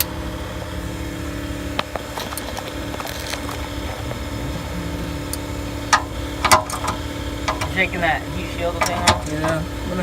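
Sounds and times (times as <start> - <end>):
steady mechanical hum: 0.0 - 10.0
tools clicking and knocking on metal: 5.9 - 7.8, 8.8 - 9.6.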